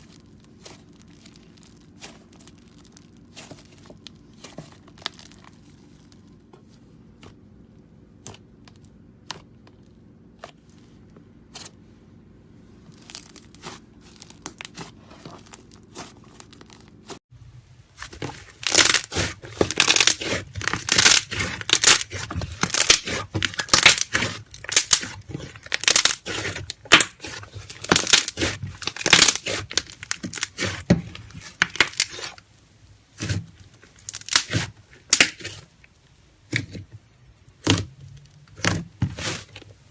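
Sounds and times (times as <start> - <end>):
slime crackling and popping: 0.0 - 6.2, 18.0 - 32.5, 33.1 - 35.6, 37.5 - 39.5
slime squished by hand: 18.0 - 32.4, 33.0 - 39.9.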